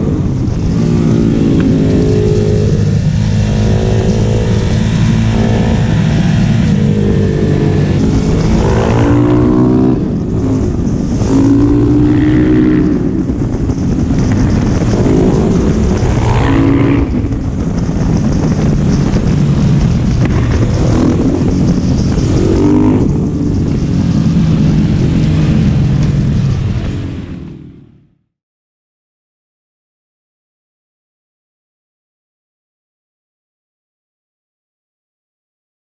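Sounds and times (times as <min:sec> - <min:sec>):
motorcycle engine revving: 0:00.0 - 0:28.1.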